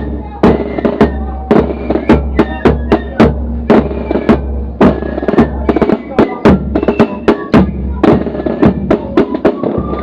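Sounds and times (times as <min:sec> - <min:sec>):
held flute notes: 0:00.0 - 0:10.0
snare and bass drum strokes: 0:00.0 - 0:10.0.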